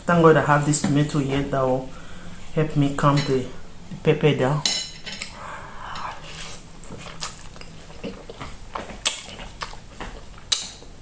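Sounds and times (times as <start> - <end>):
wet chewing: 5.9 - 10.9
lip smacks: 6.1 - 10.9.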